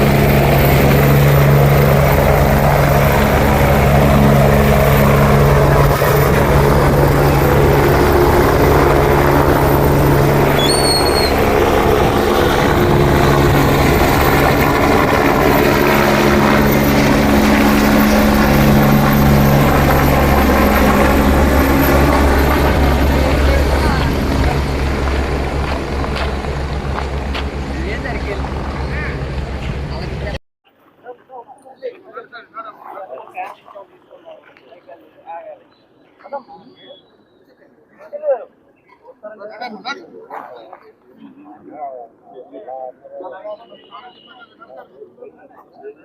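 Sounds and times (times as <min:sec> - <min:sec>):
helicopter rotor and turbine: 0:00.0 - 0:30.4.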